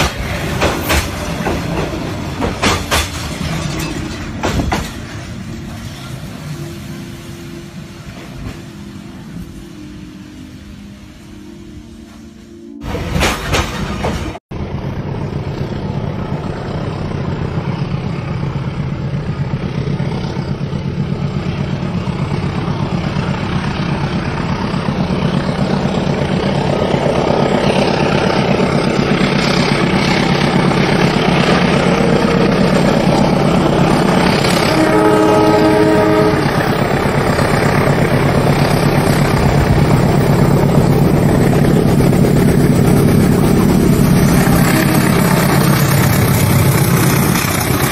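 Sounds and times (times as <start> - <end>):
train rumbling and rattling: 0.0 - 47.9
train horn: 34.3 - 37.3, 44.2 - 46.4.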